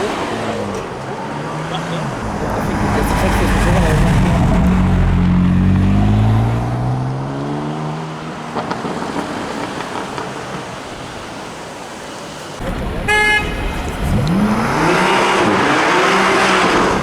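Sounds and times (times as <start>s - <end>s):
car engine accelerating: 0.0s - 9.9s, 12.6s - 17.0s.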